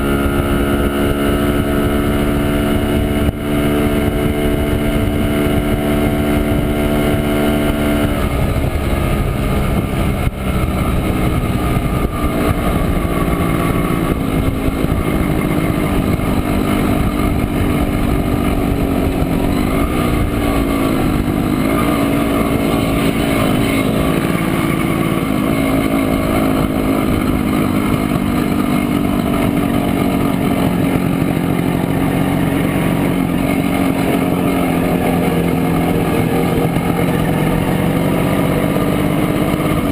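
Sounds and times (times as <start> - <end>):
two-stroke motorcycle engine running: 0.0 - 39.9.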